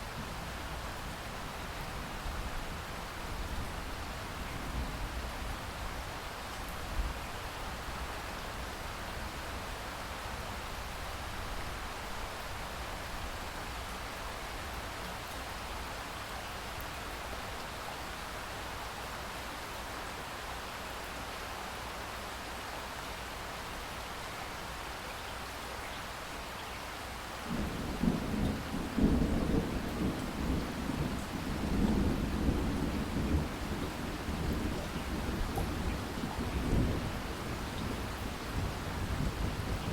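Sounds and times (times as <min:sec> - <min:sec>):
steady rain falling: 0:00.0 - 0:39.9
rolling thunder: 0:27.5 - 0:39.9.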